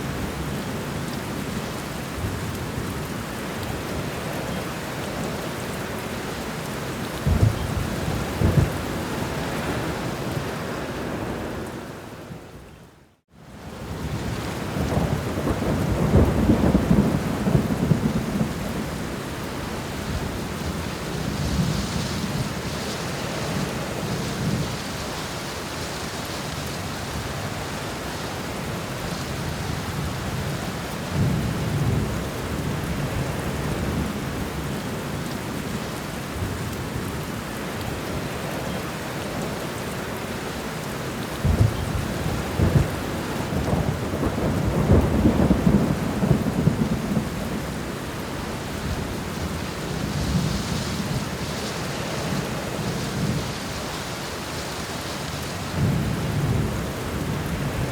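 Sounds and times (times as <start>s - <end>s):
heavy rain falling: 0.0s - 57.9s
rolling thunder: 7.2s - 9.9s, 14.0s - 19.2s, 41.4s - 47.9s.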